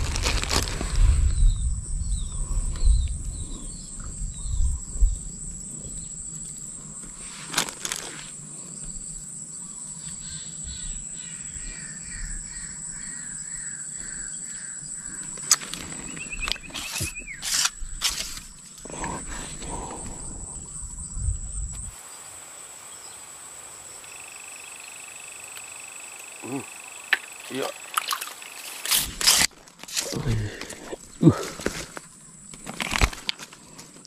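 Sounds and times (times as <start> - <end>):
bird chirping: 9.5 - 22.3.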